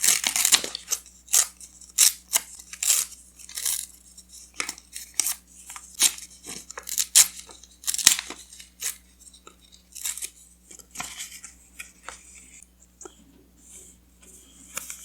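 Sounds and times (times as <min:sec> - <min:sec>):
paper tearing: 0:00.0 - 0:03.9, 0:06.0 - 0:09.0, 0:09.9 - 0:10.4.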